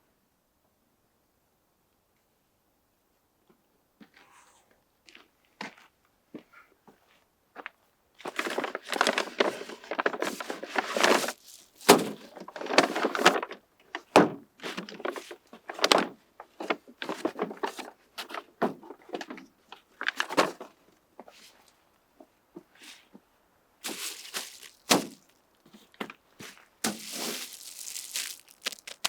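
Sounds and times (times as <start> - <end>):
objects knocking and thudding: 11.0 - 12.3, 23.8 - 25.3, 26.8 - 29.0.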